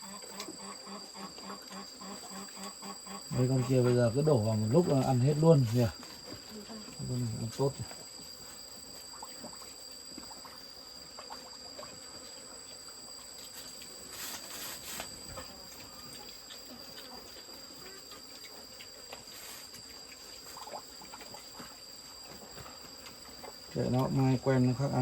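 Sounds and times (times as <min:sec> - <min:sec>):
insects trilling: 0:00.0 - 0:25.0
short rustle: 0:13.5 - 0:15.4.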